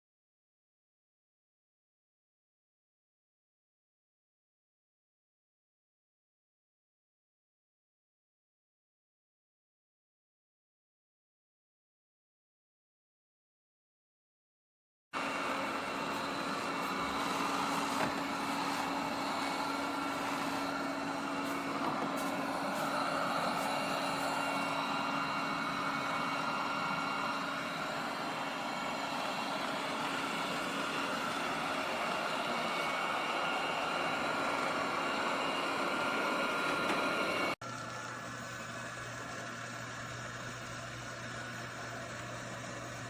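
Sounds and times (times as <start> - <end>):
robot vacuum whirring: 15.2 - 43.0.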